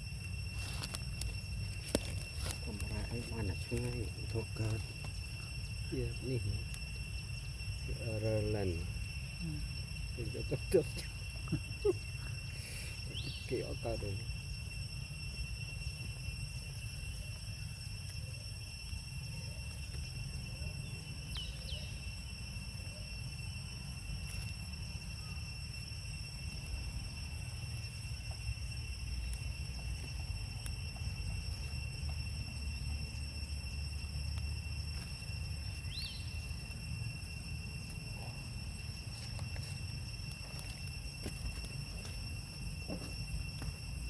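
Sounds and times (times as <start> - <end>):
faint chirps: 0.0 - 14.6, 18.3 - 33.2, 33.8 - 44.0
high-pitched insect drone: 0.0 - 44.0.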